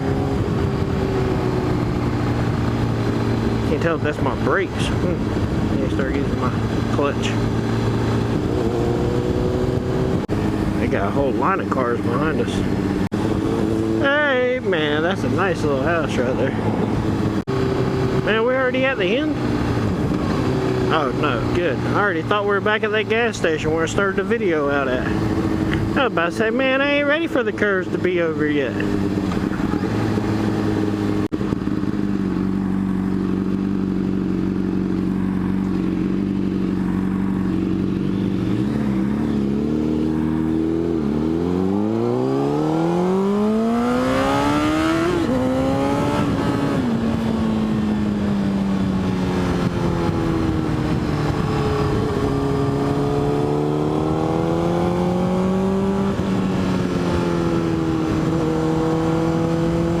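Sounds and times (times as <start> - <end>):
motorcycle engine revving: 0.0 - 60.0.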